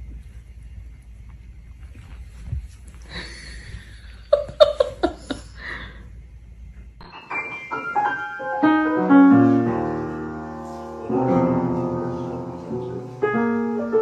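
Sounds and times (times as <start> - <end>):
piano music: 7.0 - 14.0.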